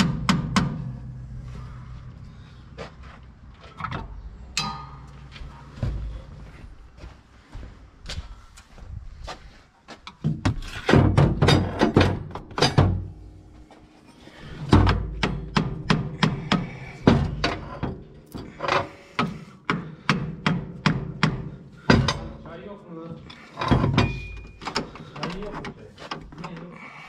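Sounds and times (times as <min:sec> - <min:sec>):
hand tools knocking on metal: 0:04.6 - 0:06.1, 0:14.6 - 0:22.5.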